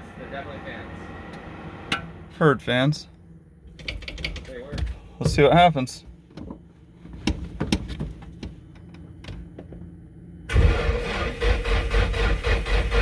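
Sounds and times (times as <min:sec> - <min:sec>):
starter motor cranking engine: 0:10.5 - 0:13.0.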